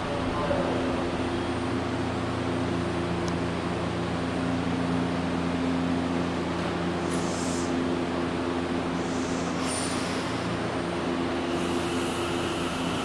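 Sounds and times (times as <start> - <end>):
electric train humming: 9.0 - 13.0.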